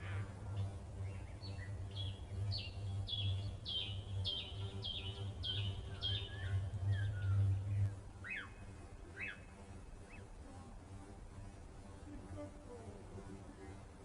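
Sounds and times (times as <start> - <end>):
low pulsing hum: 0.0 - 14.0.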